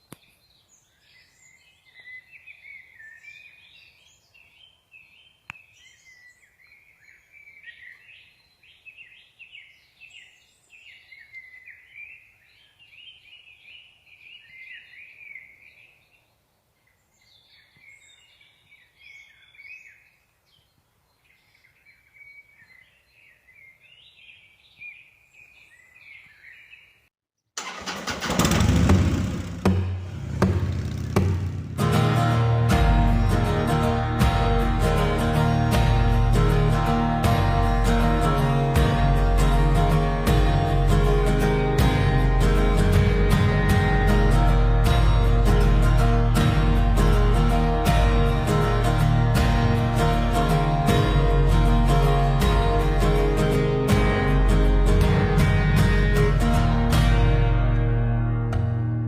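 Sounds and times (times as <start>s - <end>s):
songbirds singing and chirping: 0.0s - 27.1s
loud music with guitar: 30.4s - 59.0s.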